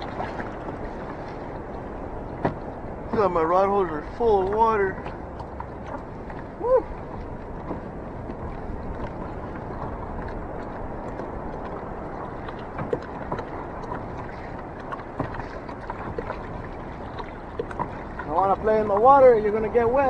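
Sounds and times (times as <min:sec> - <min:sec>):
sea water splashing around kayak: 0:00.0 - 0:20.0
light knocks on kayak: 0:02.4 - 0:03.3.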